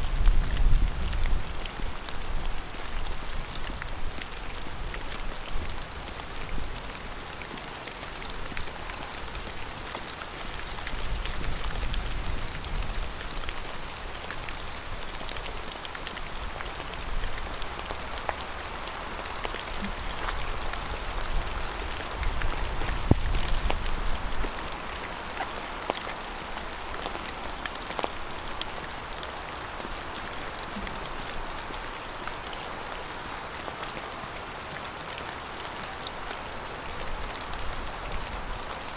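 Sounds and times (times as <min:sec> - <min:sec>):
rain drops ticking: 0:00.0 - 0:38.9
rain hissing: 0:00.0 - 0:38.9.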